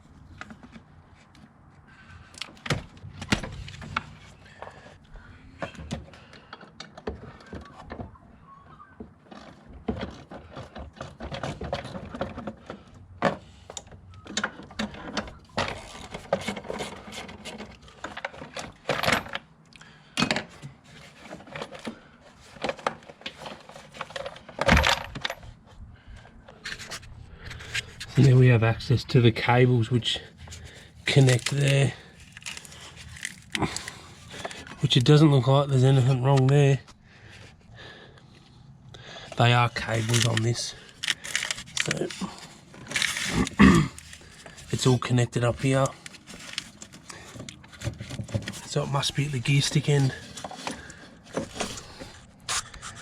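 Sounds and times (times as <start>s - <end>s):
tools and car parts clinking: 9.1s - 25.7s, 30.4s - 35.1s, 39.4s - 44.8s.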